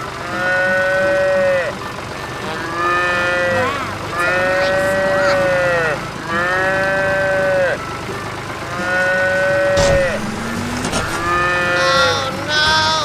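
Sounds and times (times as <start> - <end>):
cartoon cat meowing: 3.6 - 5.9, 11.8 - 13.0
short knock: 9.8 - 11.4.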